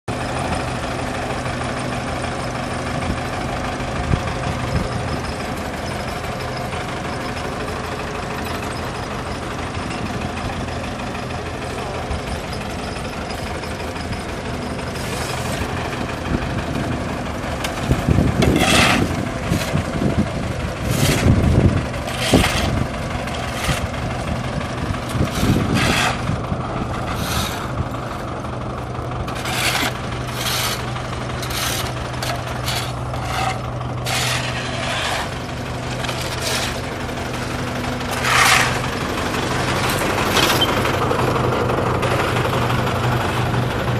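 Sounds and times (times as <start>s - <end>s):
diesel engine running: 0.1s - 43.9s
rough scraping: 12.6s - 17.0s, 17.6s - 43.9s.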